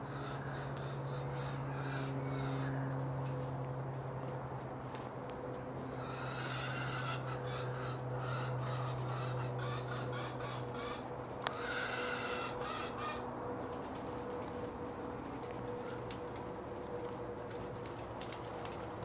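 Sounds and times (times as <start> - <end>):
crows cawing: 0.0 - 3.0, 6.0 - 13.4
steady low hum: 0.0 - 19.0.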